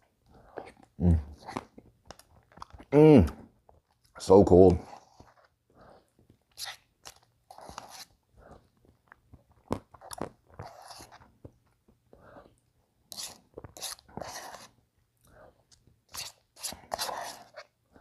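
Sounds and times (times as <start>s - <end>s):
chewing and crunching food: 0.0s - 18.0s.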